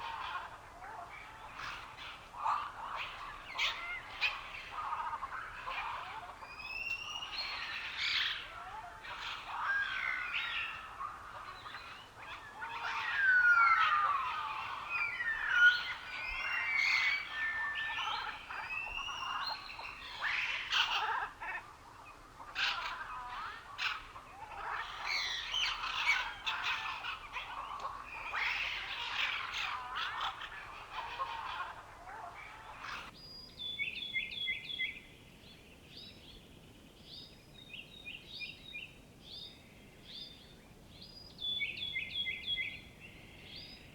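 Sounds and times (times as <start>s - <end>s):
songbirds singing and calling: 0.0s - 43.9s.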